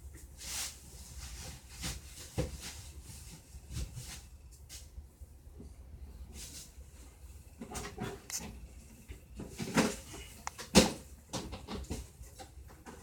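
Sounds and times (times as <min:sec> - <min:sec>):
scattered knocks and clicks: 0:09.1 - 0:13.0.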